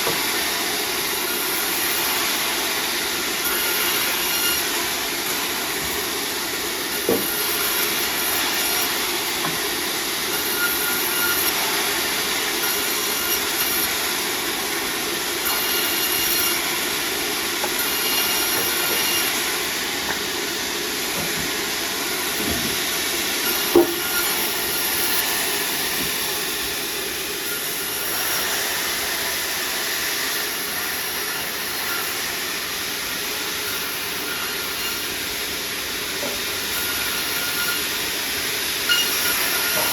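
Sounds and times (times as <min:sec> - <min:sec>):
sawmill saw cutting timber: 0:00.0 - 0:39.9.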